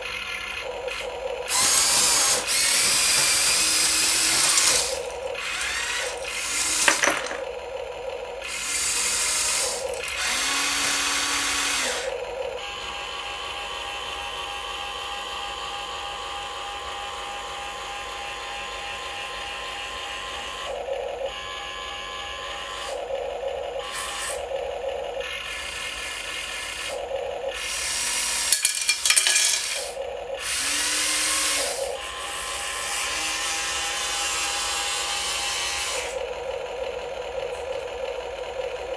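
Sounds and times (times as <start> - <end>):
toy motors whirring: 0.0 - 7.5, 8.4 - 14.9, 23.8 - 38.9.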